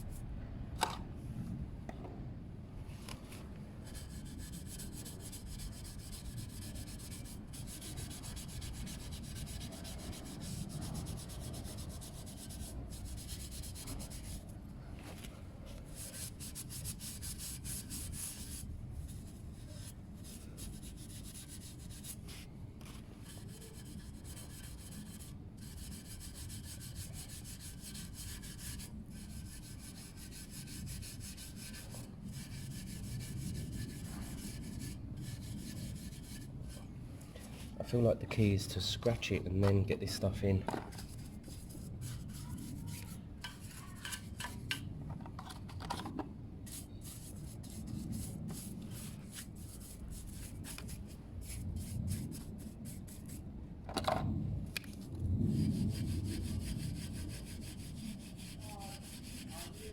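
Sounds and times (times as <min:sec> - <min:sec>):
steel wool scrubbing metal pipe: 0:03.8 - 0:14.4, 0:23.2 - 0:36.8, 0:40.9 - 0:44.8, 0:56.5 - 0:59.9.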